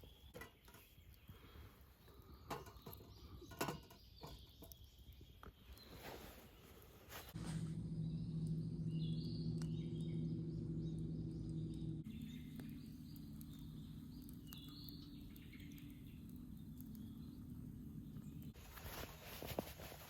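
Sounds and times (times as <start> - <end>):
small birds chirping: 0.0 - 20.0
steady low hum: 7.2 - 20.0.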